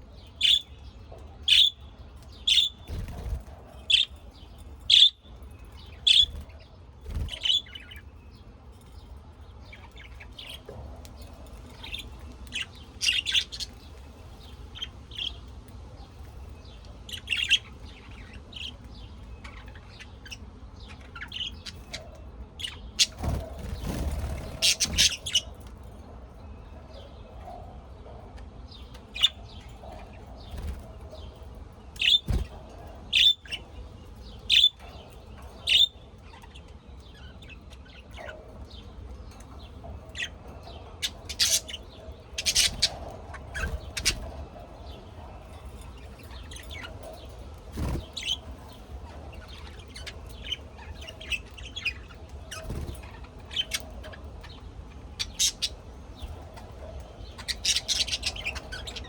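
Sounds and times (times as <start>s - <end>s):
birds chirping: 0.0s - 59.0s
low background hum: 0.0s - 59.0s.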